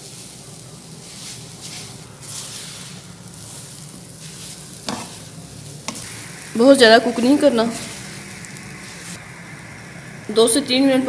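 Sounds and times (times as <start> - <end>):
spatula stirring: 0.0 - 6.5
radish sizzling in pan: 0.0 - 11.0.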